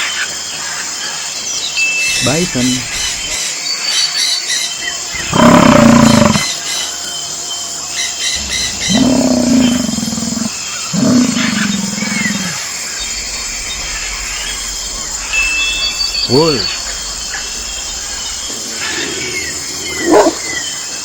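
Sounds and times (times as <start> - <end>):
birds chirping: 1.4 - 21.0
bison bellowing: 5.2 - 6.5, 8.3 - 15.4.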